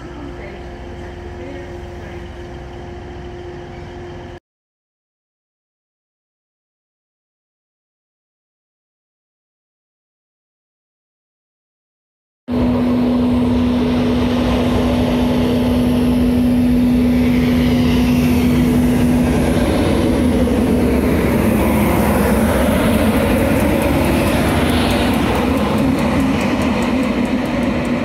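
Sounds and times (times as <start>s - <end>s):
electric locomotive passing: 0.0s - 4.4s, 12.5s - 28.0s
wheels rumbling on rail: 0.0s - 4.4s, 12.5s - 28.0s
steady hum: 12.5s - 28.0s.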